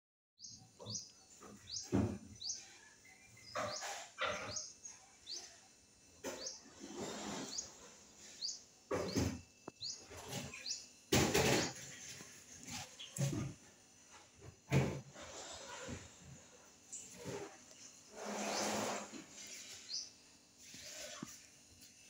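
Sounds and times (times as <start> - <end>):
small bird chirping: 0.4 - 11.0, 16.9 - 21.2
noisy bumps: 8.9 - 16.5.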